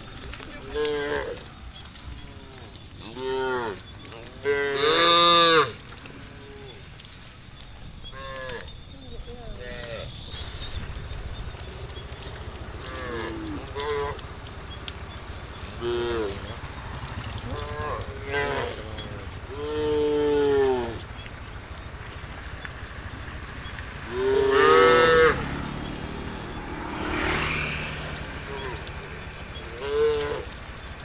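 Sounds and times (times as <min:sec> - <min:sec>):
cattle mooing: 0:00.6 - 0:01.5, 0:03.0 - 0:05.8, 0:12.2 - 0:21.2, 0:24.0 - 0:27.4, 0:28.0 - 0:30.6.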